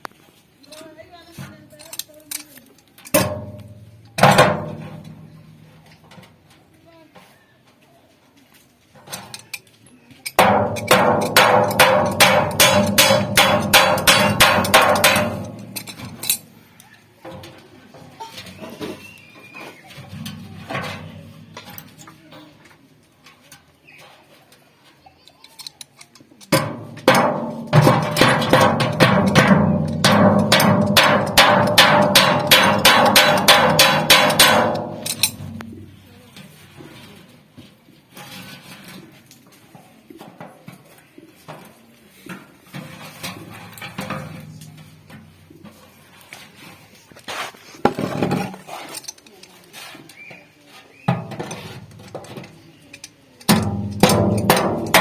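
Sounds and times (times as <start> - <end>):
hammer beating sheet metal: 10.4 - 16.2, 26.6 - 35.8, 53.5 - 55.0.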